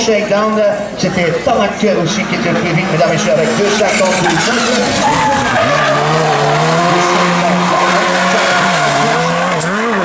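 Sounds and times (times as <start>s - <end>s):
rally car engine at high revs: 2.2s - 10.0s.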